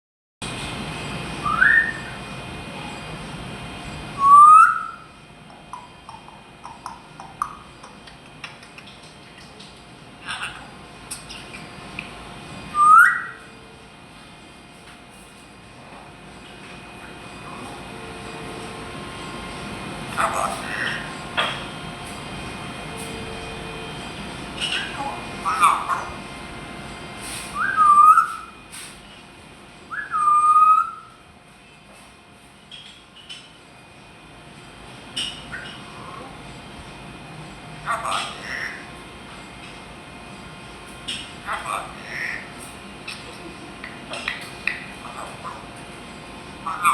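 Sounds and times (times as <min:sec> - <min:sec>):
parrot whistle: 0:01.4 - 0:02.2, 0:04.2 - 0:05.1, 0:12.7 - 0:13.5, 0:27.5 - 0:28.6, 0:29.9 - 0:31.2
soft clicks and chirps: 0:05.7 - 0:09.8.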